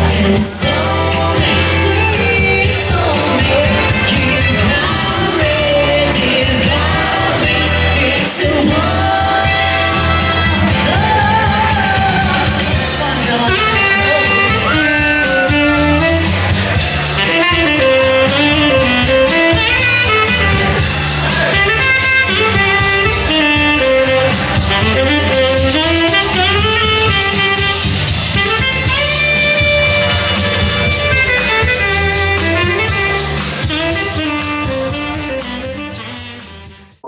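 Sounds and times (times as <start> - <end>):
drum kit: 0.0 - 37.0
guitar: 0.0 - 37.0.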